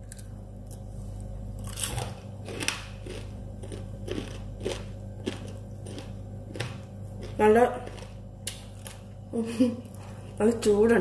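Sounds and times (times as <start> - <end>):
crunchy chewing: 1.6 - 9.1.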